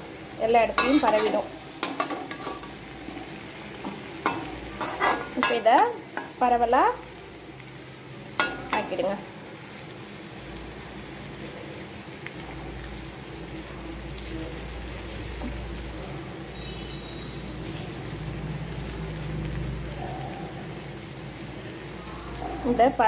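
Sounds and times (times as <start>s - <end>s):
banana slices sizzling in oil: 0.0s - 23.0s
spatula scraping and tapping pan: 0.8s - 2.8s, 3.8s - 6.4s.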